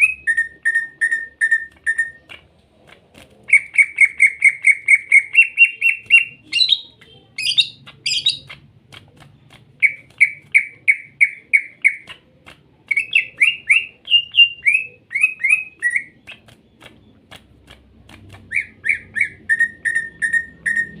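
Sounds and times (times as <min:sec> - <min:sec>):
bird whistling song: 0:00.0 - 0:02.4, 0:03.5 - 0:08.6, 0:09.8 - 0:12.2, 0:12.9 - 0:17.2, 0:18.4 - 0:21.0
harsh high bird notes: 0:18.4 - 0:21.0.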